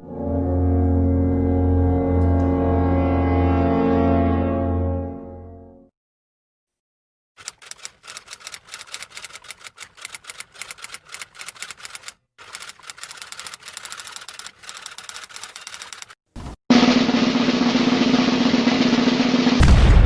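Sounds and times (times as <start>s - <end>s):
rapid keyboard typing: 7.4s - 16.6s
loud drum roll: 16.7s - 20.0s.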